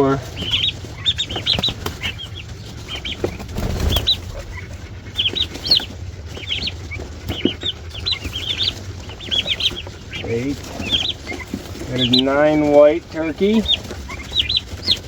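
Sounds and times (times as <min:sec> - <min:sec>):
turkey poults peeping: 0:00.0 - 0:15.0
knocks and rustling: 0:01.3 - 0:07.5.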